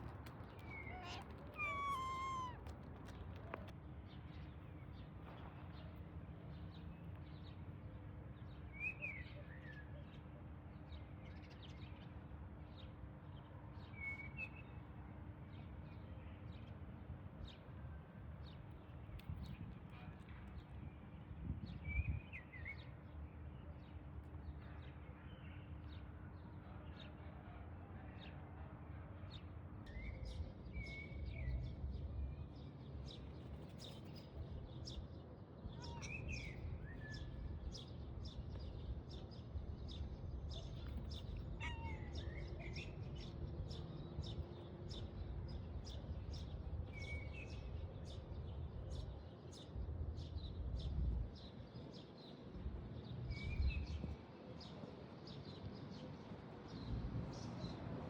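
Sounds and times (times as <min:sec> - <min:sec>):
low rumble of outdoor noise: 0:00.0 - 0:58.0
birds chirping: 0:00.5 - 0:03.6.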